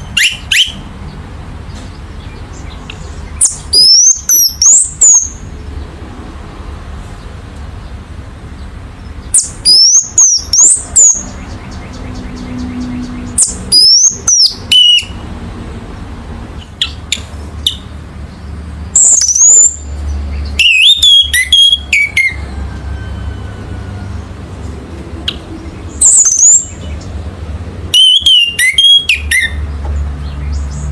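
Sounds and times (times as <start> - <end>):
thrush singing high whistles: 0.0 - 0.8, 13.4 - 15.2, 20.5 - 24.0, 27.9 - 29.6.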